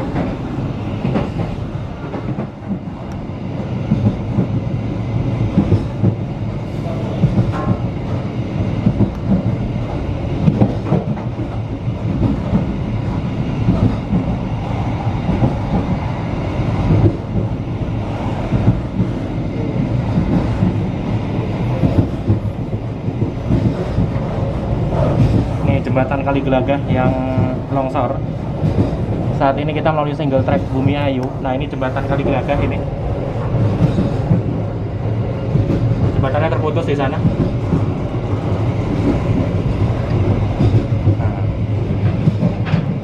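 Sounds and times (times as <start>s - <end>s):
train rumble: 0.0s - 43.0s.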